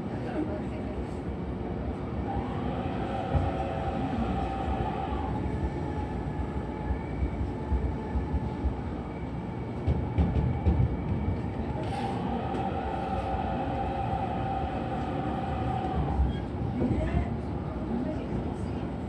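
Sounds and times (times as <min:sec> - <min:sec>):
train wheels rumbling on rail: 0:00.0 - 0:19.0
steady whine: 0:11.1 - 0:16.6.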